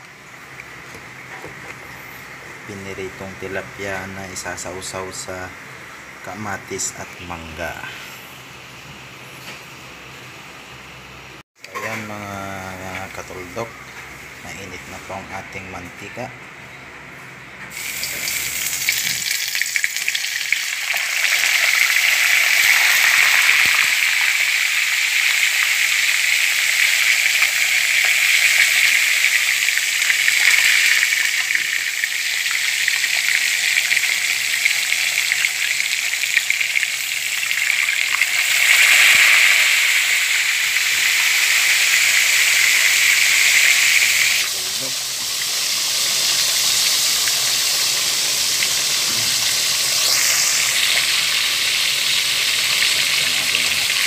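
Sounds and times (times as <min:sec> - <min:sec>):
fish sizzling in hot oil: 0:17.7 - 0:54.0.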